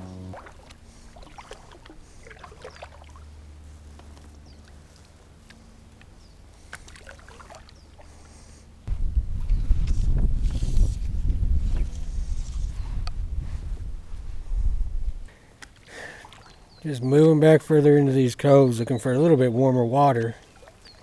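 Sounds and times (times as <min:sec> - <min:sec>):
loud low rumble: 0:00.0 - 0:00.4
low steady hum: 0:00.0 - 0:17.6
water drips and splashes: 0:00.4 - 0:03.3, 0:06.6 - 0:08.1, 0:15.6 - 0:16.6, 0:20.1 - 0:21.0.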